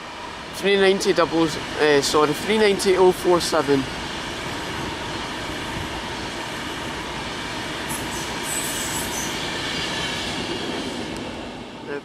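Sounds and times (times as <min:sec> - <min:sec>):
train wheels rushing on rail: 0:00.0 - 0:12.0
high squeal: 0:07.9 - 0:10.4.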